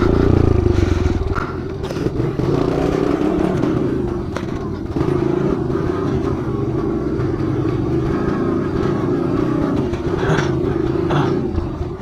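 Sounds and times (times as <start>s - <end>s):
pit bike engine running: 0.0s - 12.0s.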